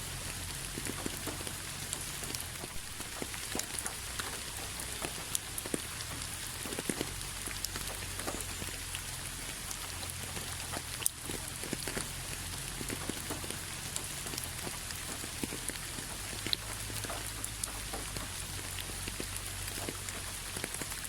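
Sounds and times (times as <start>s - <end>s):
raindrops tapping: 0.0s - 21.0s
steady rain falling: 0.0s - 21.0s.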